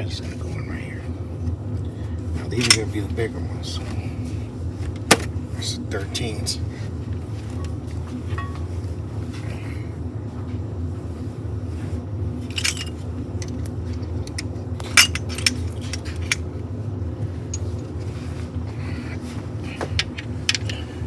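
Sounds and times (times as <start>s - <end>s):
steady low hum: 0.0s - 21.0s
metal bolts clinking: 12.5s - 16.4s, 17.5s - 18.0s, 19.9s - 20.9s.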